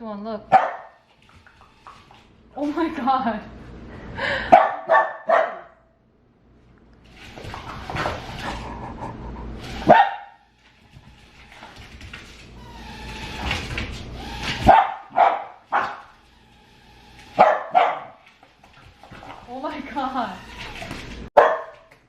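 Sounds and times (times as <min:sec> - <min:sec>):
dog barking: 0:00.5 - 0:01.0, 0:04.5 - 0:05.9, 0:09.9 - 0:10.4, 0:14.7 - 0:16.1, 0:17.4 - 0:18.2, 0:21.4 - 0:21.9.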